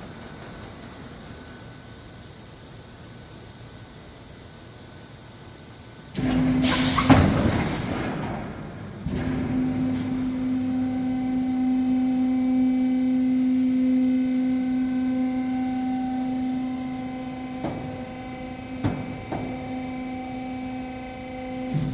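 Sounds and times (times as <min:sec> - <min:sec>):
electric motor humming: 0:09.4 - 0:21.9.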